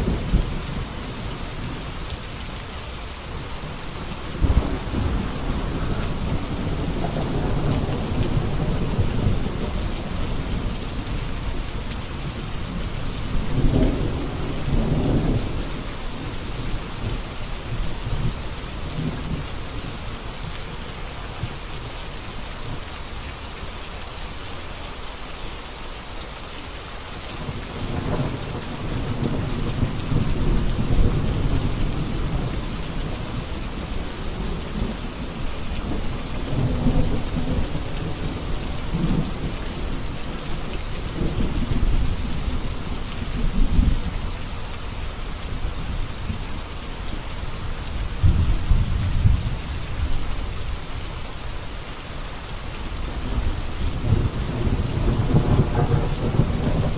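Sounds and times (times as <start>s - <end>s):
steady rain: 0.0s - 56.9s
rolling thunder: 3.7s - 17.1s, 48.1s - 50.2s, 53.1s - 56.9s.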